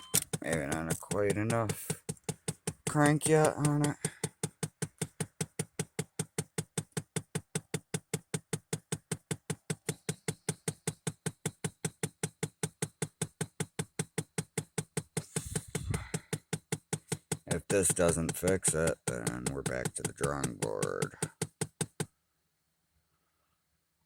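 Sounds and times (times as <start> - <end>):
rapid even clicking: 0.0 - 22.1.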